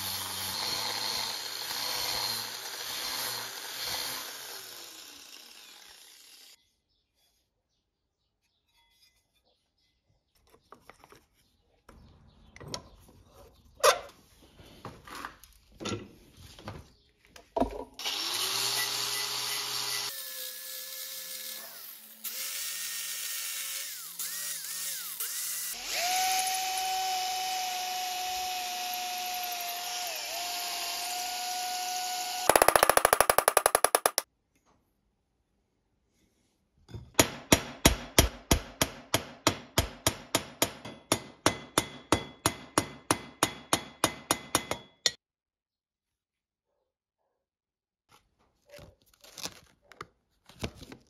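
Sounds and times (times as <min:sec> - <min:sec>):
electric power tool running: 0:00.0 - 0:06.6, 0:18.0 - 0:34.2
tools knocking and clicking: 0:32.5 - 0:34.2.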